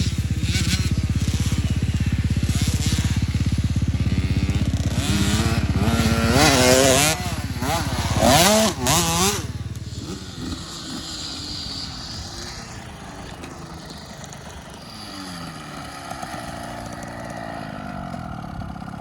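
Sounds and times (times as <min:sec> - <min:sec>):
dirt bike engine revving: 0:00.0 - 0:19.0
distant dirt bike engines: 0:00.0 - 0:19.0.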